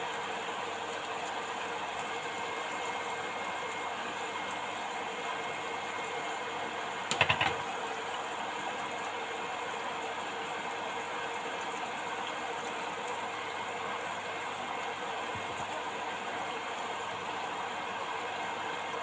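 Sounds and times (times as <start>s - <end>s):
oil sizzling: 0.2s - 19.0s
rattle of clicks: 7.1s - 7.6s.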